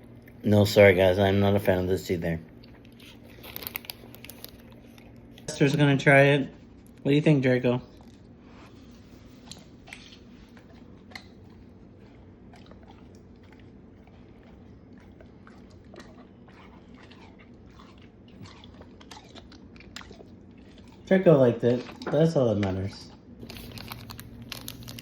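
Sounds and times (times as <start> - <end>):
dog chewing wet clicks: 2.6 - 5.9, 9.4 - 25.0.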